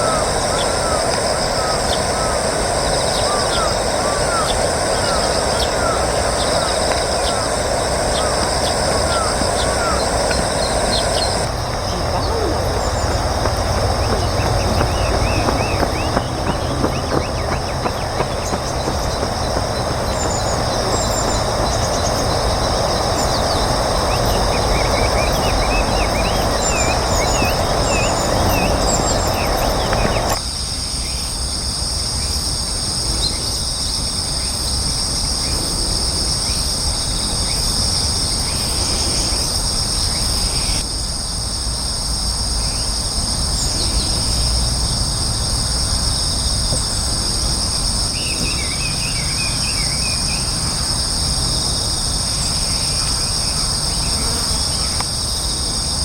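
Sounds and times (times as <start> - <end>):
small birds chirping: 0.0 - 30.4
rushing background noise: 0.0 - 30.6
high-pitched insect drone: 0.0 - 56.0.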